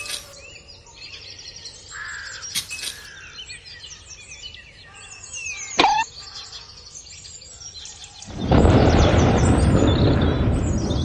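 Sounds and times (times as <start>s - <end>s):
small birds chirping: 0.0s - 11.0s
sharp click: 5.8s - 6.1s.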